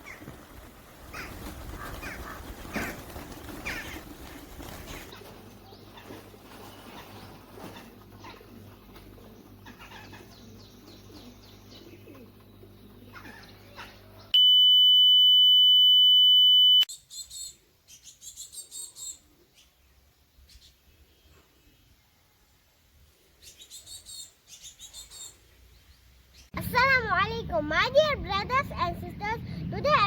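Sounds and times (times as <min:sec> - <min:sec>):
small birds chirping: 0:00.0 - 0:14.4, 0:16.9 - 0:22.0, 0:23.4 - 0:26.6
loud electronic beep: 0:14.4 - 0:16.9.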